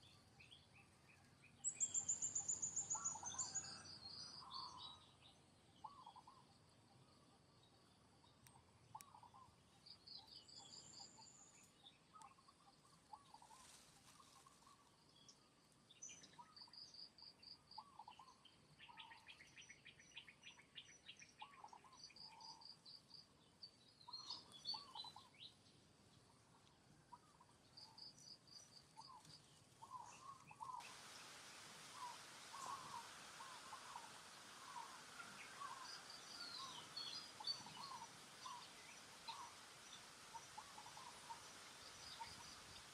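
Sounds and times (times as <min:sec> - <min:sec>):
birds trilling and chirping: 0:00.0 - 0:05.2, 0:24.1 - 0:25.4, 0:27.2 - 0:42.9
light background hiss: 0:00.0 - 0:42.9.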